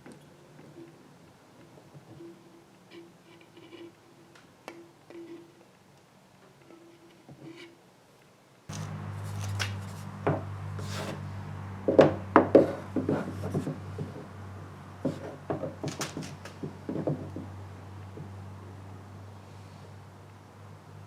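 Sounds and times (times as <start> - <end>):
clicks knocks and rubs: 8.7 - 11.2, 12.4 - 14.3, 15.0 - 17.5
steady low hum: 8.7 - 21.0.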